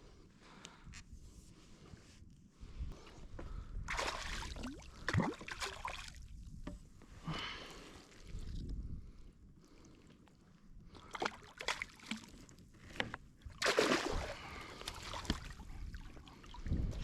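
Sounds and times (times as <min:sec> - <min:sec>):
water splashing: 0:03.9 - 0:06.1, 0:13.6 - 0:15.5.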